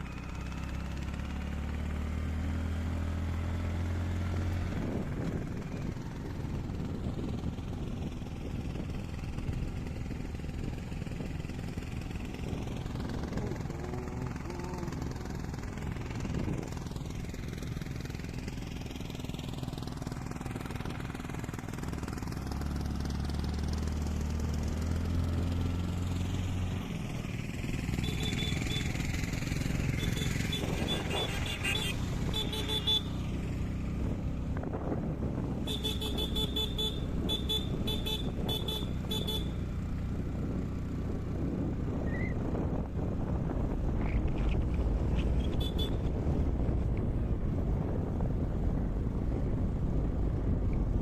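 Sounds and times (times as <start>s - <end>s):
vehicle engine running: 0.0s - 51.0s
short car horn beeps: 28.0s - 28.9s, 30.0s - 33.1s, 35.7s - 39.5s.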